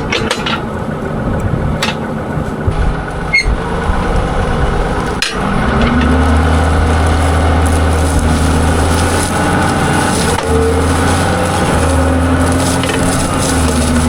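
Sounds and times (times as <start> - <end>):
sharp metal knocks and clanks: 0.0 - 0.8, 1.8 - 2.2, 5.2 - 6.2
tractor engine running: 0.0 - 14.0.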